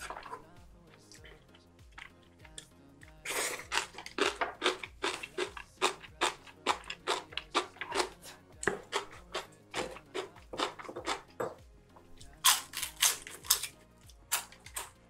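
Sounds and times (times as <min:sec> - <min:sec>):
crisp crunching while chewing: 0:03.2 - 0:08.2, 0:12.3 - 0:15.0.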